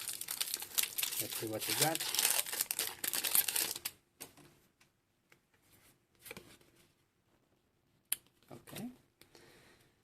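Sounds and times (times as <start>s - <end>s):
foil wrapper crinkling: 0.0s - 3.9s.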